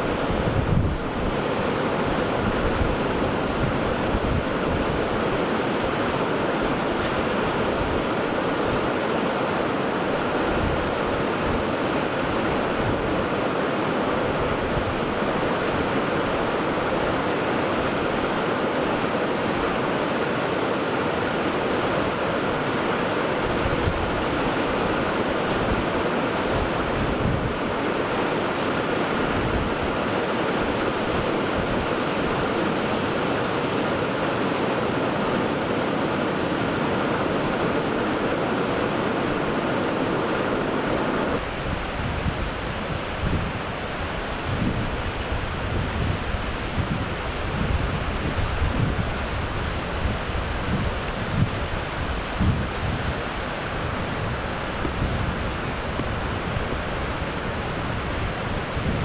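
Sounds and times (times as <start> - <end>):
wind buffeting microphone: 0.0 - 8.9, 21.8 - 59.0
surf breaking on shore: 0.0 - 59.0.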